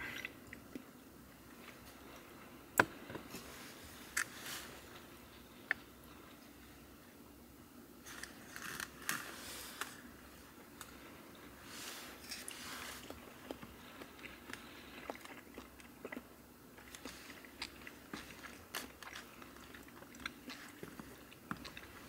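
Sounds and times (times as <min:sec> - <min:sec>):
man chewing: 0:12.1 - 0:22.0.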